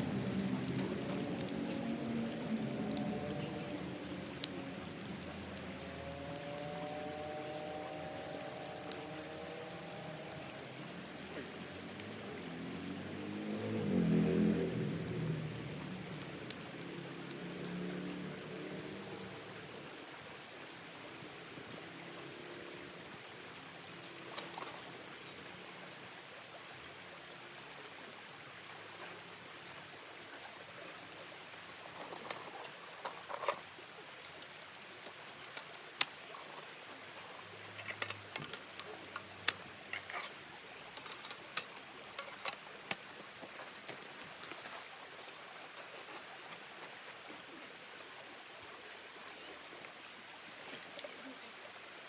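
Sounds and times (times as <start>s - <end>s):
faint steady hiss: 0.0s - 52.0s
small clicks and taps: 34.2s - 36.1s, 37.8s - 40.4s, 41.0s - 45.4s.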